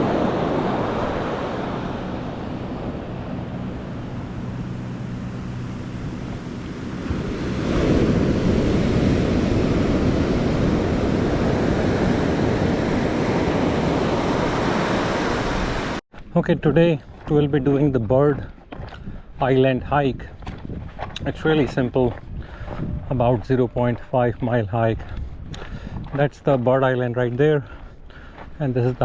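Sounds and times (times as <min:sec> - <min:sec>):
ocean surf washing: 0:00.0 - 0:16.0
wind buffeting microphone: 0:00.0 - 0:29.0.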